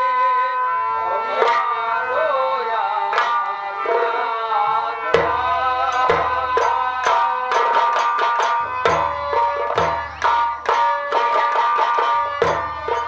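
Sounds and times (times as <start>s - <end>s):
hand drum beating: 5.2s - 13.0s.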